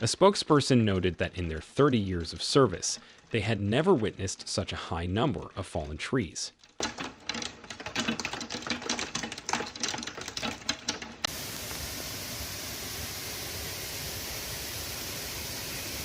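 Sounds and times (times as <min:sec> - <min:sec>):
clatter of small impacts: 0:06.5 - 0:11.3.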